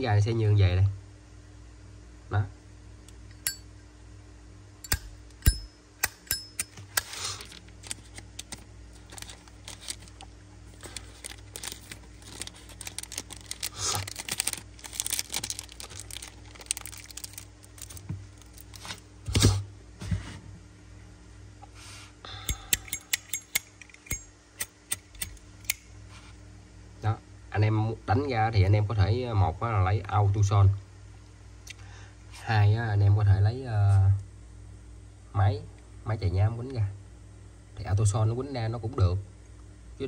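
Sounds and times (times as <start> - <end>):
metal lighter clicks and taps: 4.8 - 6.8, 22.5 - 25.8
scratchy rubbing and rustling: 9.0 - 16.6.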